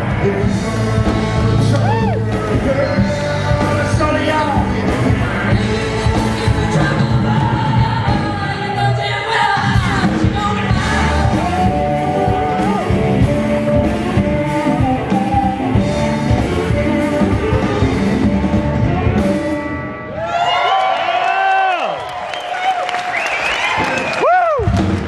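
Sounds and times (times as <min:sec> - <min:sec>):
person singing: 0:00.0 - 0:19.6
live rock band playing: 0:00.0 - 0:20.6.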